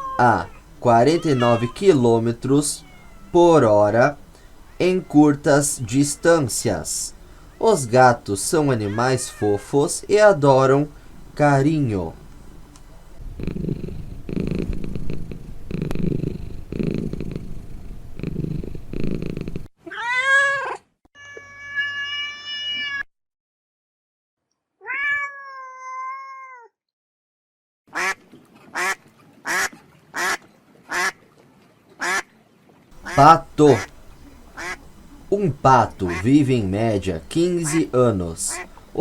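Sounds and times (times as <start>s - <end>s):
cat meowing: 0.0s - 3.8s, 4.5s - 6.5s, 8.6s - 9.9s, 19.8s - 23.1s, 24.8s - 26.7s
cat purring: 0.0s - 19.7s, 33.0s - 39.0s.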